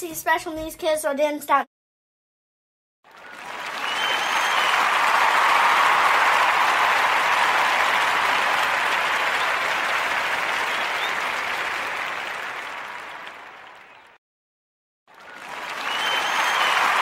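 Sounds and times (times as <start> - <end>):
crowd applause: 3.1 - 14.2, 15.1 - 17.0.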